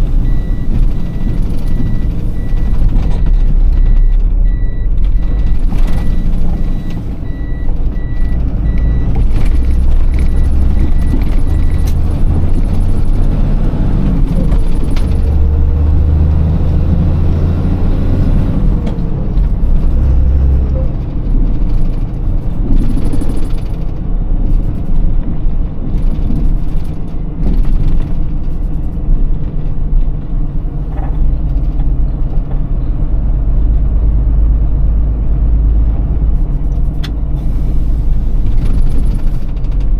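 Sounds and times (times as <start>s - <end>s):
truck diesel engine rumbling: 0.0s - 39.9s
electronic beeps: 10.1s - 11.9s.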